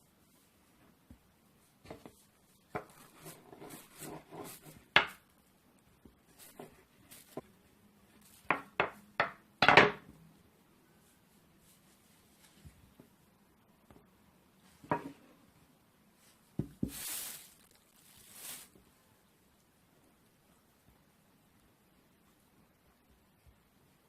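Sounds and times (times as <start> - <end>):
faint rustling: 11.0 - 13.2, 16.1 - 19.0.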